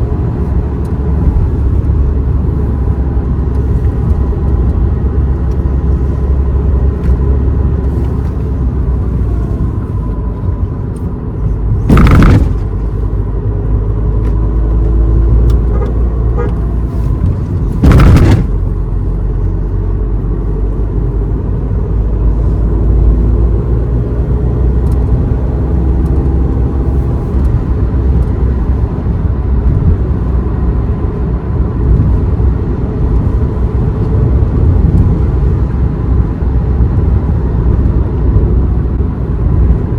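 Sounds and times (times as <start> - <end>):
car engine and tyre rumble: 0.0 - 39.9
loud noise bursts: 11.8 - 12.8, 17.8 - 18.6.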